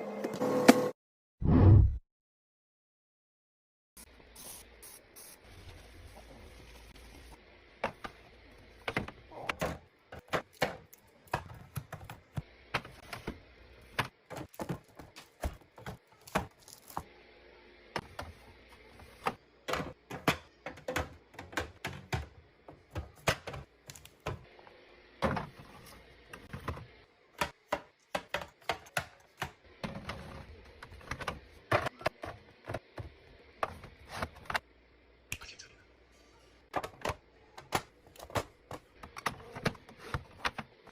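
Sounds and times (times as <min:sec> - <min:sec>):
food containers tapping and knocking: 0:19.2 - 0:24.5, 0:26.3 - 0:34.6.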